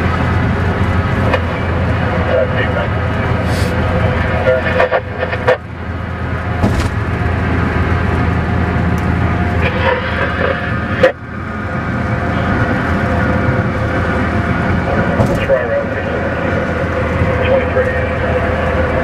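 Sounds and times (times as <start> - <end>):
car driving road noise: 0.0 - 19.0.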